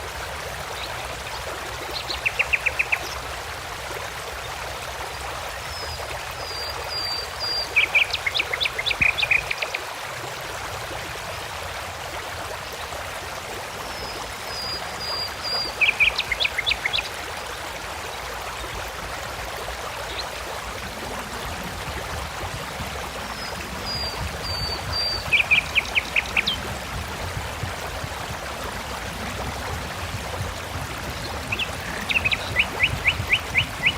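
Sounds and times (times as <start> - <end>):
flowing water: 0.0 - 33.9
songbird singing: 23.3 - 26.9, 30.7 - 33.9.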